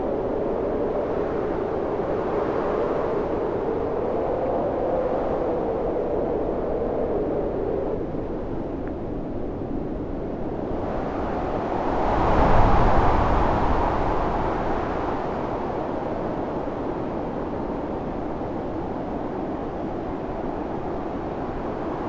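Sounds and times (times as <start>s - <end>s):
storm wind blowing: 3.1s - 22.0s.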